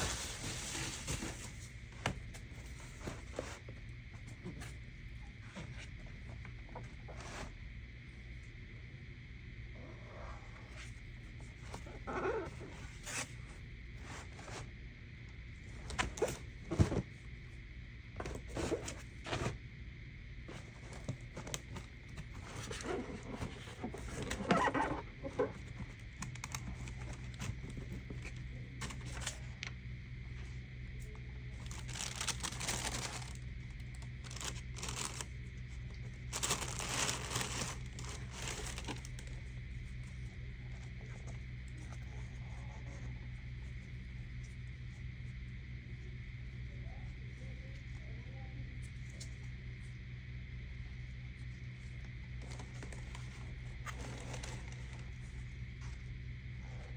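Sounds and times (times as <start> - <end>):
paper rustling and crinkling: 0.0 - 3.7, 20.5 - 29.8, 31.6 - 35.4, 36.0 - 39.5, 52.4 - 55.9
steady low hum: 0.0 - 56.9.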